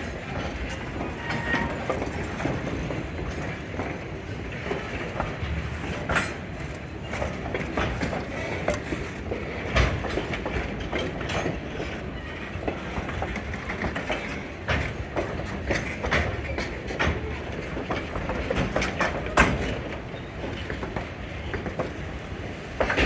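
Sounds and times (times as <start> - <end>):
train rumbling on track: 0.0 - 23.0
wheels clanking over rail joints: 0.0 - 23.0.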